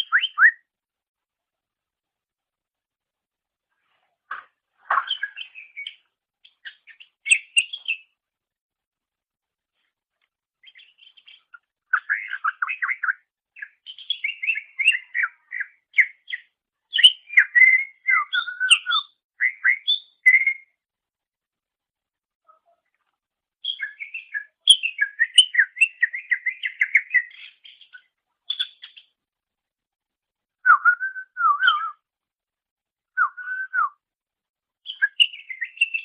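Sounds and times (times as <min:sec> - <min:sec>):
bird singing chirps and whistles: 0:00.0 - 0:00.7, 0:05.0 - 0:08.1, 0:10.6 - 0:20.8, 0:23.6 - 0:29.1, 0:30.6 - 0:32.0, 0:33.2 - 0:34.0, 0:34.8 - 0:36.0.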